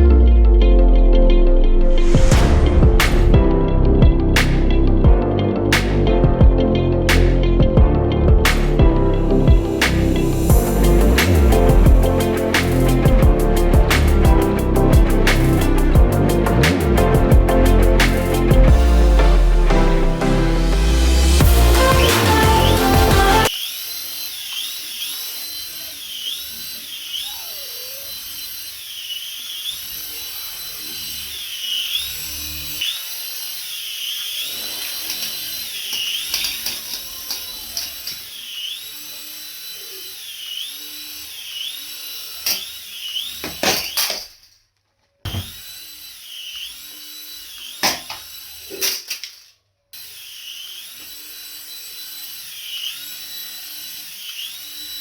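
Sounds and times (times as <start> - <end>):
toy electronic whine: 20.8 - 44.3, 45.3 - 55.0.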